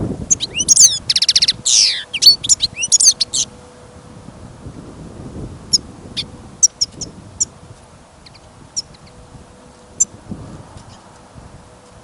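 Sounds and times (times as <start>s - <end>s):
wind rumble on microphone: 0.0s - 12.0s
goldfinch twittering: 0.3s - 3.5s, 5.7s - 7.5s, 8.2s - 9.2s.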